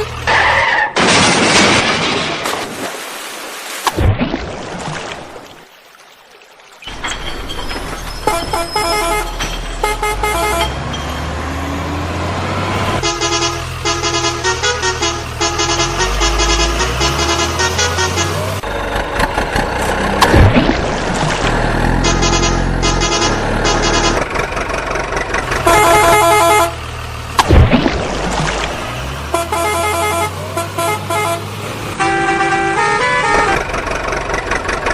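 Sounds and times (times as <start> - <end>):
low engine rumble: 6.9 - 34.9
vehicle horn short notes: 8.3 - 10.8, 13.0 - 18.6, 22.0 - 24.2, 25.6 - 26.8, 29.3 - 33.6.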